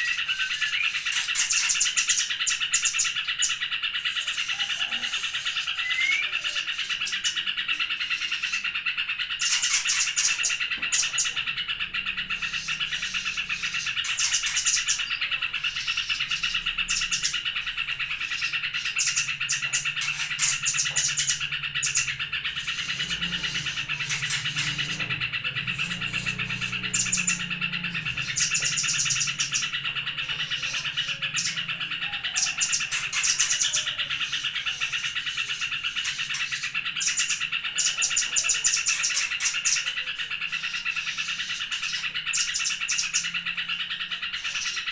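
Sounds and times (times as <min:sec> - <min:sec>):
high fast bird chirps: 0:00.0 - 0:44.9
songbirds chirping and trilling: 0:00.0 - 0:44.9.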